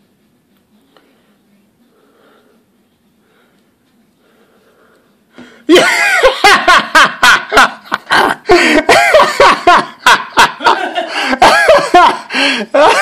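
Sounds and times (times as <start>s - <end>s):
person laughing loudly: 5.7s - 13.0s.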